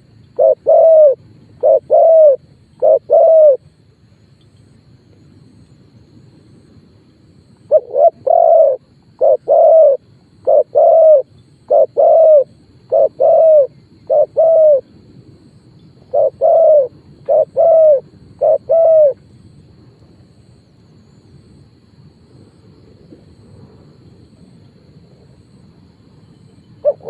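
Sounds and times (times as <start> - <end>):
dove cooing: 0.0 - 3.7, 7.7 - 14.9, 16.0 - 19.2, 26.8 - 27.0.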